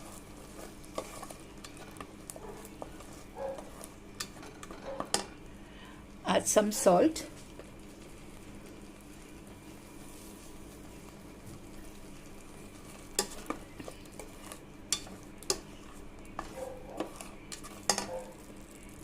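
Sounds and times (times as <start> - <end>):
paste sizzling in oil: 0.0 - 4.4, 6.8 - 19.0
spoon scraping and knocking pan: 0.1 - 5.4, 13.1 - 18.4.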